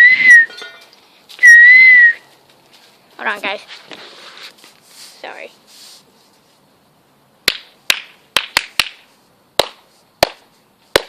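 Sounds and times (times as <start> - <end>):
hand claps: 7.5 - 9.0.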